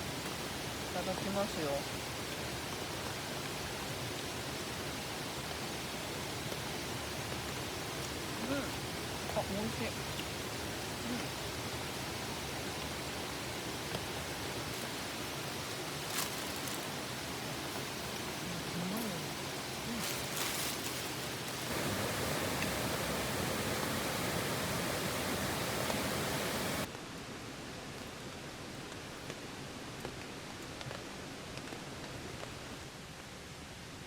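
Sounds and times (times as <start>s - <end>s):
rushing water: 0.0s - 26.9s.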